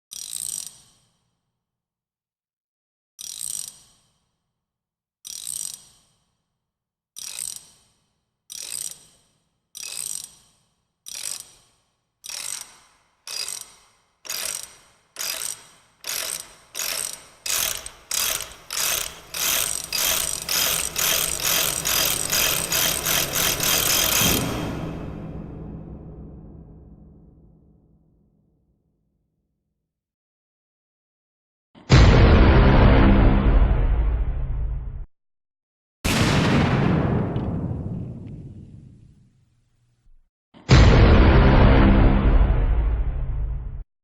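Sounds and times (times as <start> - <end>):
sharp mechanical clicks: 9.8 - 25.2.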